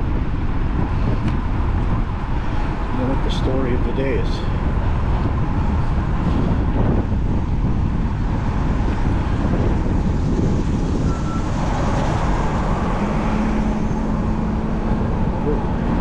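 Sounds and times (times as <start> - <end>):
road traffic: 0.0 - 16.0
wind on microphone: 0.0 - 16.0.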